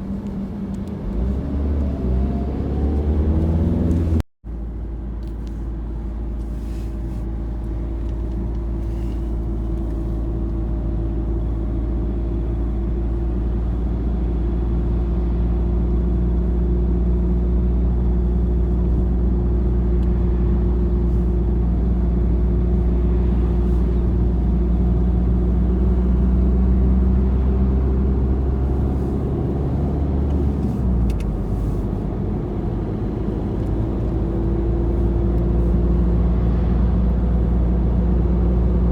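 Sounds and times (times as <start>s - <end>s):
vehicle engine rumble: 0.0s - 38.9s.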